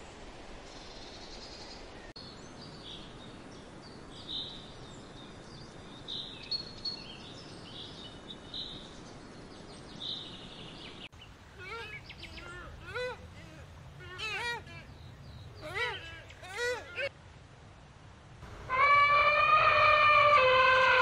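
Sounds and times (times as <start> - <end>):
outdoor ambient hiss: 0.0 - 21.0.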